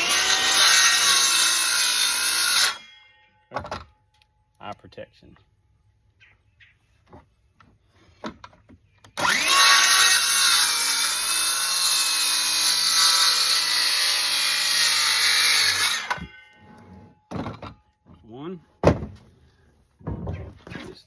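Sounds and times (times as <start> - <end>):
power saw cutting wood: 0.0 - 3.0, 9.2 - 17.1.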